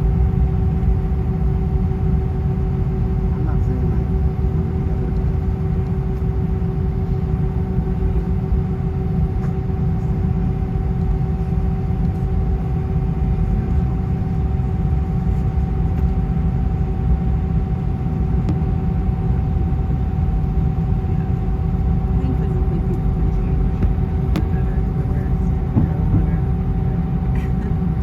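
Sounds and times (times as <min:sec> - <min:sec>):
aircraft cabin rumble: 0:00.0 - 0:28.0.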